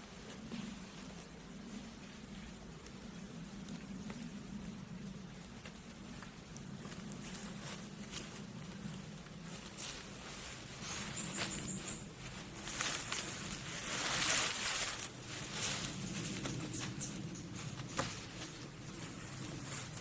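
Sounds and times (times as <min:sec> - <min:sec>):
rustling and scraping: 0:05.6 - 0:20.0.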